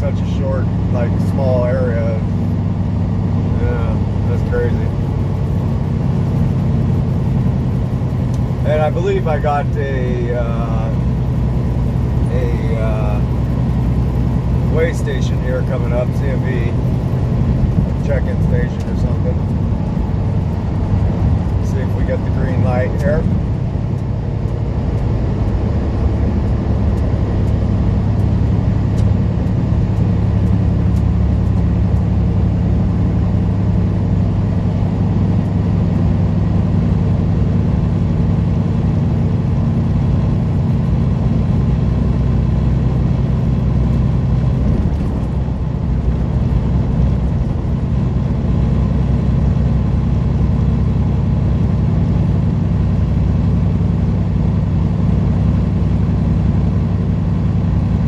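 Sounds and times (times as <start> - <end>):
road noise: 0.0 - 58.0
truck diesel engine running: 0.0 - 58.0
light regular ticks: 26.3 - 32.1.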